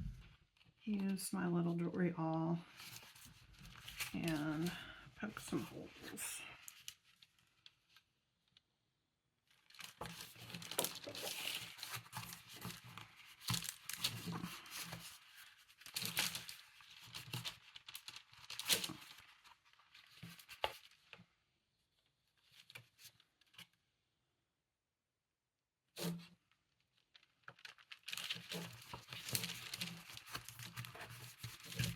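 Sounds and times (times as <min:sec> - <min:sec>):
paper crinkling and rustling: 0:02.2 - 0:08.1, 0:09.4 - 0:21.3, 0:22.0 - 0:23.8, 0:26.0 - 0:31.9
awl popping through paper: 0:02.2 - 0:08.7, 0:09.4 - 0:21.3, 0:26.0 - 0:31.9.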